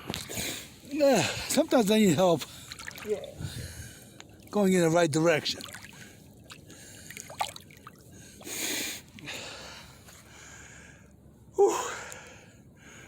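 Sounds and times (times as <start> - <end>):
man breathing heavily: 8.1 - 13.0.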